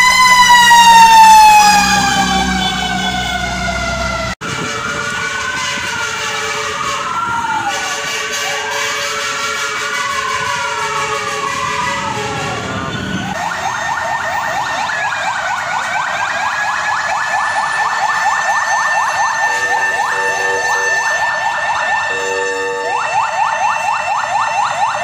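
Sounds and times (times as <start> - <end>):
fire truck sirens wailing: 0.0 - 25.0
siren yelping: 0.0 - 25.0
horn blast: 0.9 - 13.4.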